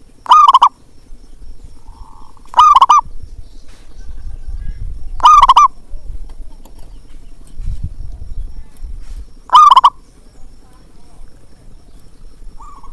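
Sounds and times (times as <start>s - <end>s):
dove cooing: 0.0s - 0.8s, 1.7s - 3.2s, 4.0s - 6.2s, 9.4s - 12.9s.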